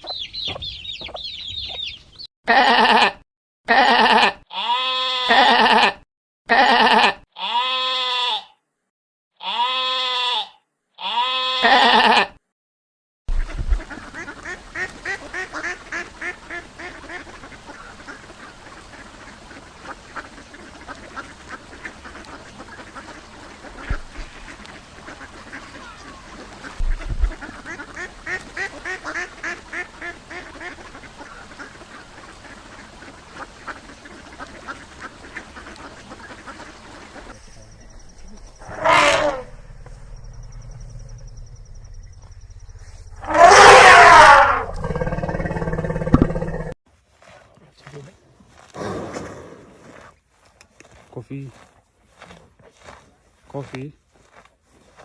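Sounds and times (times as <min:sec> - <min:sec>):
goats bleating: 0:02.5 - 0:08.5, 0:09.4 - 0:12.4
ducks quacking: 0:13.3 - 0:39.5.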